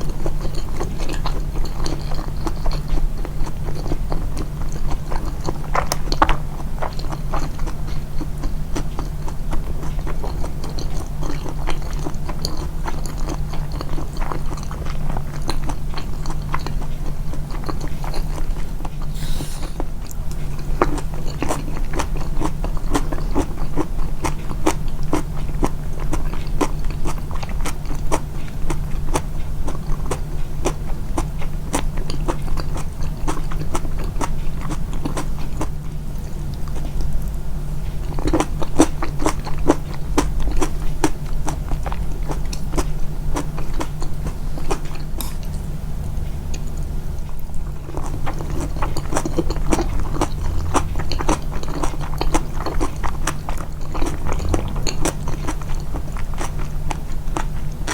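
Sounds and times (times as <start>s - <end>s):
person chewing: 0.0s - 18.4s, 19.0s - 19.9s, 38.1s - 45.7s, 47.9s - 57.9s.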